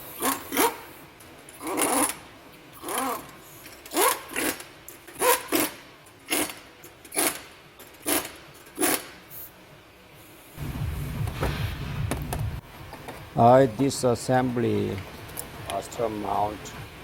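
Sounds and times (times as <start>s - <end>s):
gritty squeaky bearing rasp: 5.2s - 7.4s.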